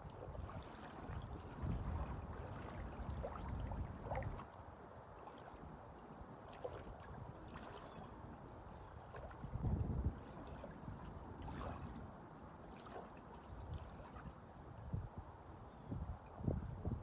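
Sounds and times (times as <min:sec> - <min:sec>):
wind: 0:00.0 - 0:17.0
waves washing: 0:00.4 - 0:04.4.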